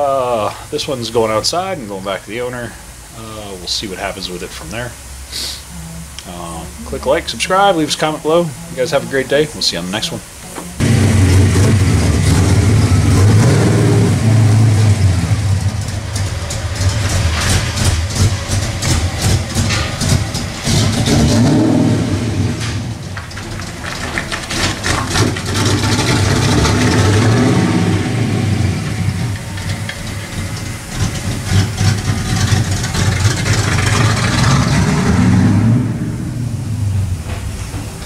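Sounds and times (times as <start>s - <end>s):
drag car engine revving: 10.8s - 38.0s.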